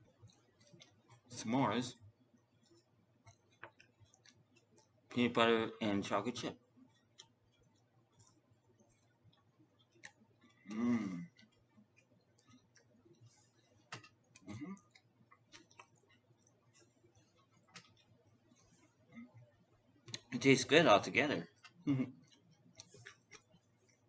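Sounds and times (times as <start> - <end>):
person chewing: 0.0 - 1.3, 2.4 - 5.1, 6.8 - 20.3, 21.5 - 24.0
wet mouth clicks: 6.9 - 16.6, 21.6 - 24.0
man humming: 10.7 - 11.3, 21.9 - 22.1.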